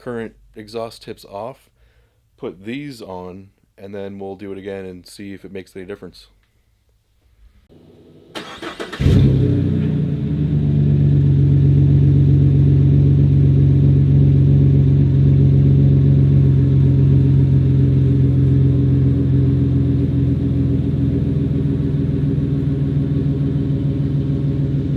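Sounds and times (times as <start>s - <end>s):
engine starter cranking: 8.3s - 9.4s
engine idling: 8.3s - 24.9s.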